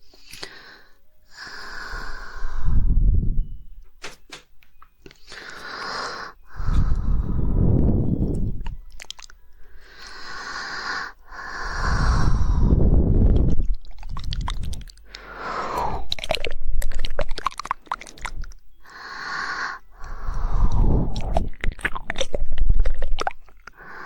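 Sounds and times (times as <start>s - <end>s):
breathy air on microphone: 0.0s - 3.6s, 5.3s - 8.8s, 9.7s - 17.3s, 18.0s - 24.0s
wet tongue and mouth clicks: 7.8s - 10.2s, 13.3s - 18.7s, 20.0s - 23.8s.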